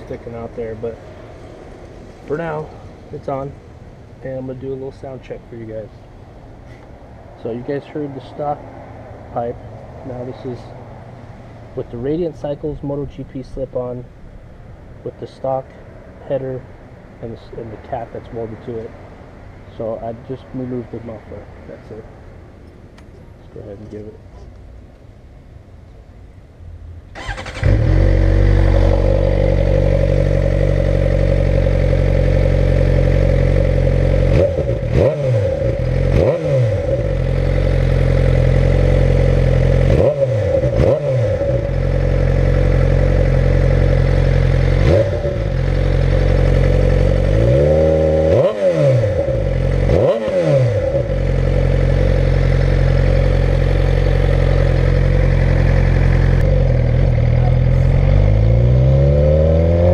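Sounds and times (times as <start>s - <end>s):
motorcycle engine idling: 27.2s - 35.0s, 41.4s - 47.4s, 50.9s - 58.4s.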